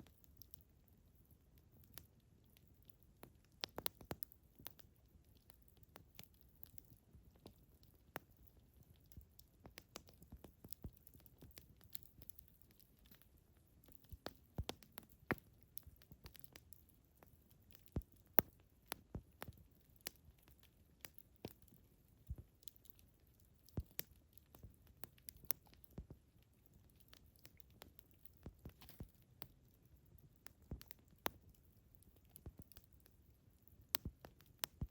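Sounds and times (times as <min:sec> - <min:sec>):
campfire wood crackling: 0:00.0 - 0:34.9.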